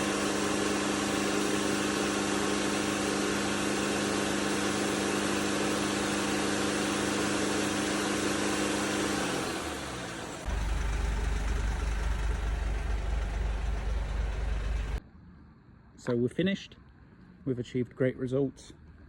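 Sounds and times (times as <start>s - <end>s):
diesel engine revving and idling: 0.0s - 15.0s.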